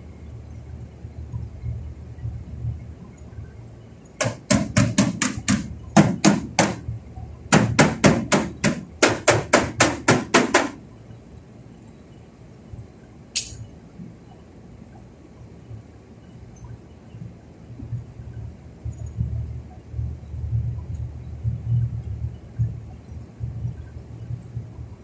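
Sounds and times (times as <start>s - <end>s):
hammer blows: 4.2s - 6.8s, 7.5s - 10.8s
sharp click: 13.3s - 13.7s.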